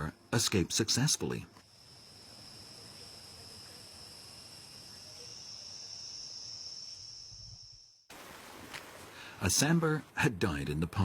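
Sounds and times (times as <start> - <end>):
high-pitched insect drone: 1.7 - 8.0.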